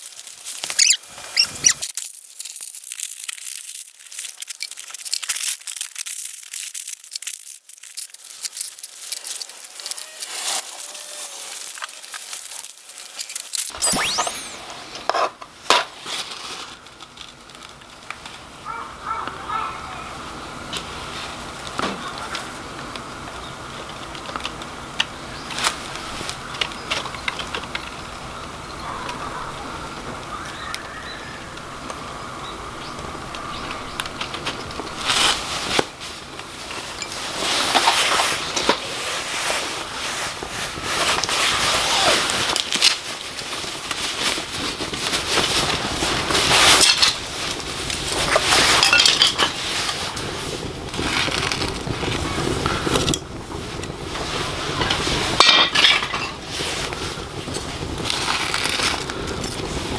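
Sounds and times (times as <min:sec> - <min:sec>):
charcoal clinking and crunching: 0:01.6 - 0:13.6, 0:40.0 - 0:52.0, 0:54.6 - 0:59.9.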